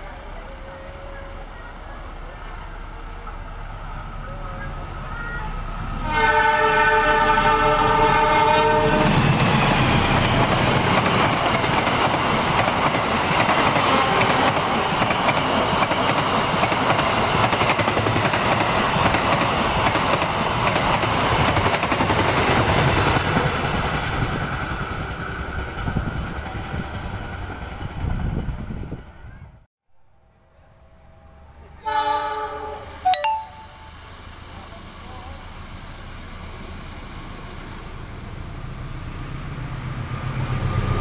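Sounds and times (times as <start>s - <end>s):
train rushing past: 0.0s - 29.7s, 30.6s - 41.0s
locomotive horn: 6.0s - 9.3s, 31.8s - 33.0s.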